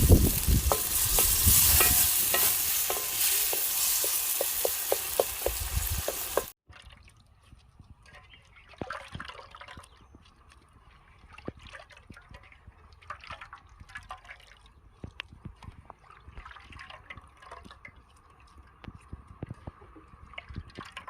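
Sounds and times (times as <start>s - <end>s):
food sizzling in hot oil: 0.0s - 6.6s
utensil striking a pot: 0.3s - 6.5s.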